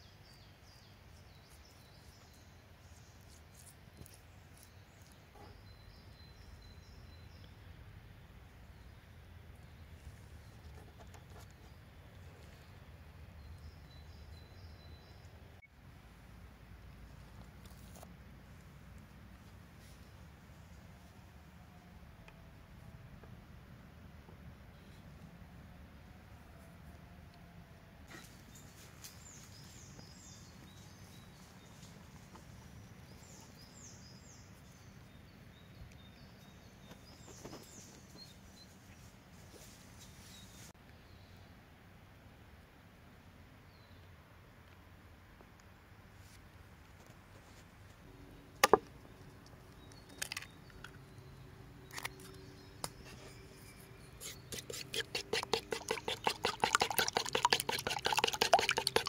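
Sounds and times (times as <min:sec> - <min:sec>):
faint songbird singing: 0:00.0 - 0:15.8, 0:28.1 - 0:41.6, 0:43.6 - 0:44.2, 0:48.1 - 0:59.0.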